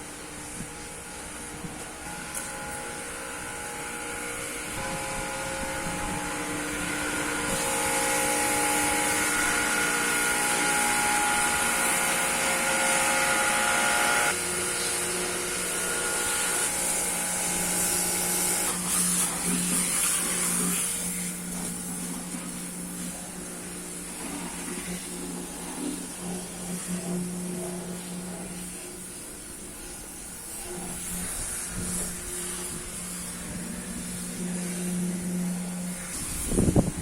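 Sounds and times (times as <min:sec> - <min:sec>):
machine motor whining: 0:01.8 - 0:20.0.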